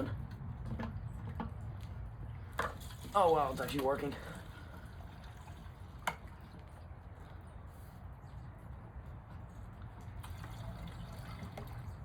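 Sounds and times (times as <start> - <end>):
gasoline trickling into tank: 0.0 - 7.5, 10.0 - 12.0.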